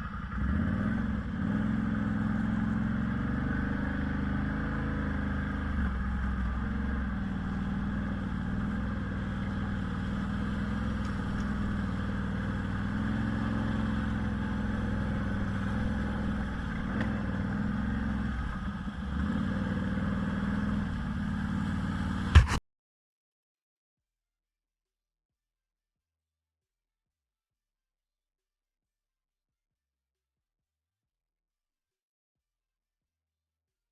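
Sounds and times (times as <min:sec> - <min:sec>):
vehicle engine running: 0:00.0 - 0:22.6
loud knock: 0:22.4 - 0:22.6.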